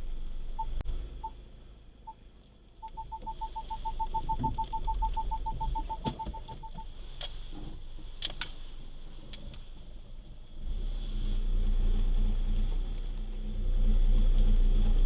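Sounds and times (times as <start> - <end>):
low rumble: 0.0 - 15.0
rapid electronic beeps: 2.8 - 6.9.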